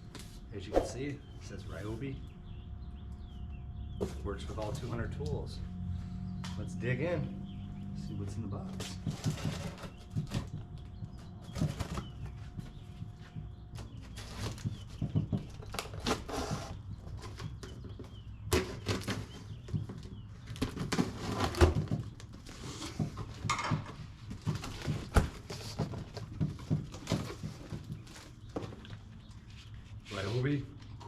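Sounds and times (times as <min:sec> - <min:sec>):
cardboard rustling and scraping: 0:08.8 - 0:10.6
knocks and thumps: 0:08.9 - 0:15.9, 0:22.9 - 0:28.8.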